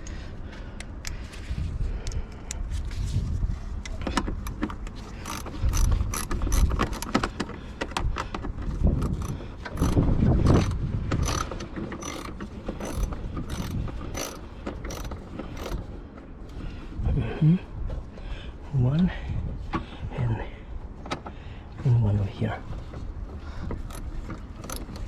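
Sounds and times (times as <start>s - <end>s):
ratchet wrench clicking: 4.4s - 7.4s, 8.7s - 15.8s, 23.8s - 25.0s.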